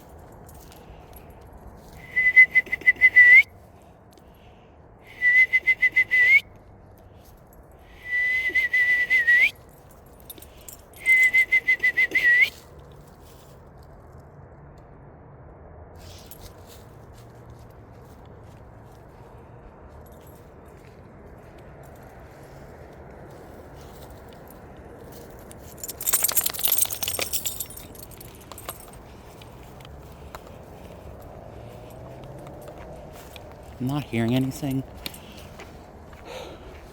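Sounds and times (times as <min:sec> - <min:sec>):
person whistling owl trill: 0:02.0 - 0:03.5, 0:05.1 - 0:06.5, 0:07.9 - 0:09.6, 0:11.0 - 0:12.6.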